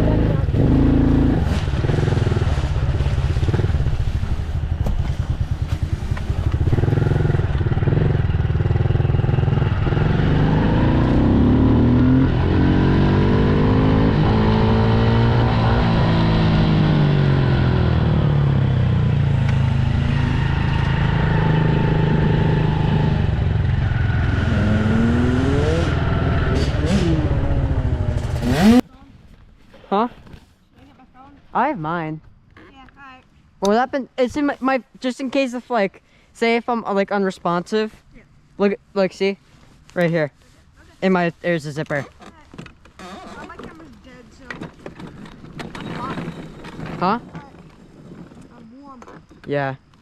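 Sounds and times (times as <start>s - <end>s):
dirt bike engine revving: 0.0s - 28.9s.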